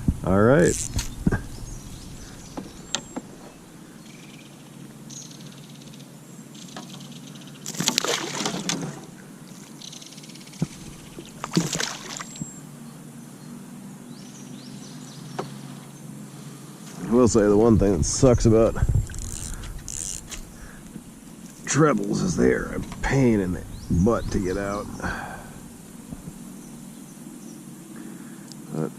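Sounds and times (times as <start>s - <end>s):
fishing hooks and lure clicking: 19.1s - 20.5s.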